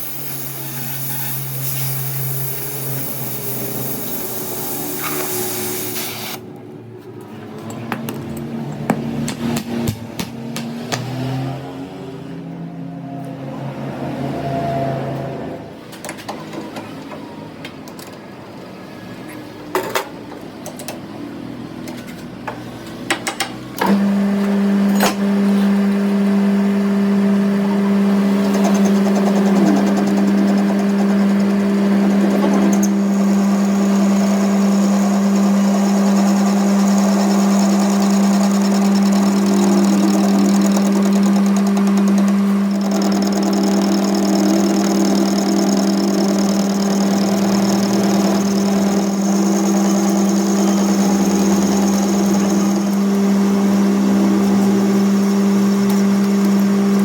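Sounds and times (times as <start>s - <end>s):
machine humming: 26.2s - 57.0s.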